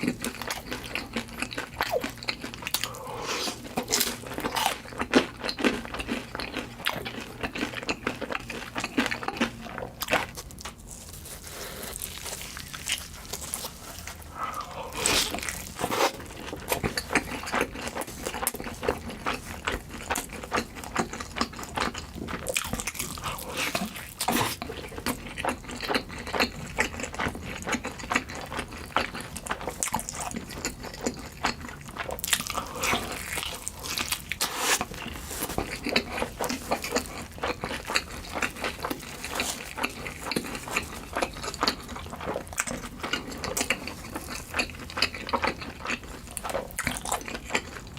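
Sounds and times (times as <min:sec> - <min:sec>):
chewing and biting food: 0:00.0 - 0:47.9.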